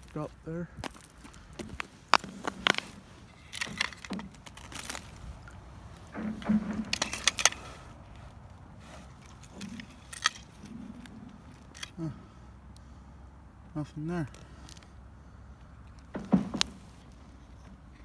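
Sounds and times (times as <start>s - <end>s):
sharp clicks and crunches: 0.0s - 12.1s, 15.8s - 18.0s.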